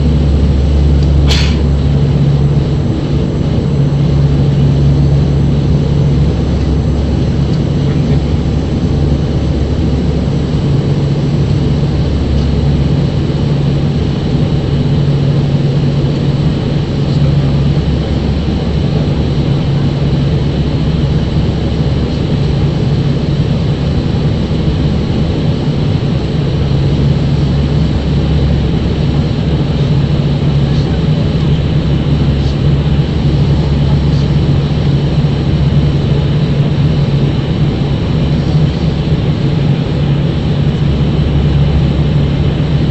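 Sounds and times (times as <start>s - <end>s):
airliner cabin engine noise: 0.0s - 42.9s
low humming tone: 0.0s - 42.9s.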